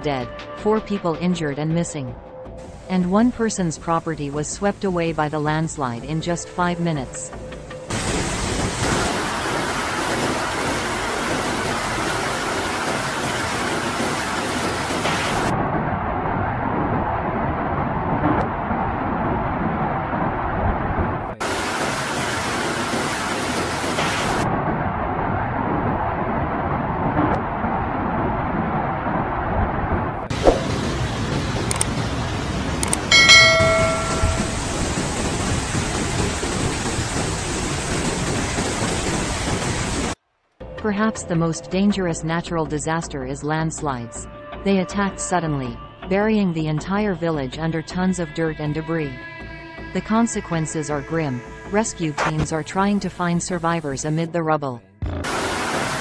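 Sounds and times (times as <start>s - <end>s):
heavy downpour hissing: 7.9s - 15.5s, 21.4s - 24.4s, 33.8s - 40.2s, 55.2s - 56.0s
ringing metallic tone: 33.1s - 35.0s.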